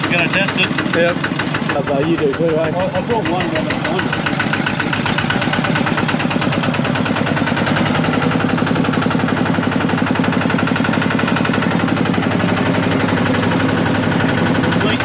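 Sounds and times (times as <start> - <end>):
tractor diesel engine chugging: 0.0 - 15.0.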